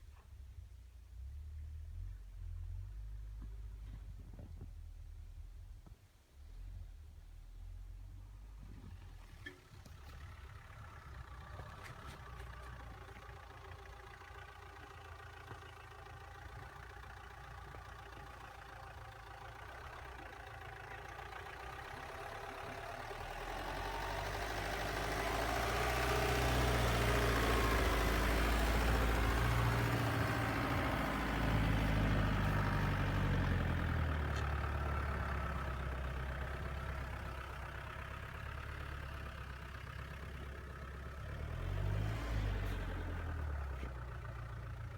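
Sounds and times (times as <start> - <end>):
off-road vehicle engine: 0.0 - 44.9.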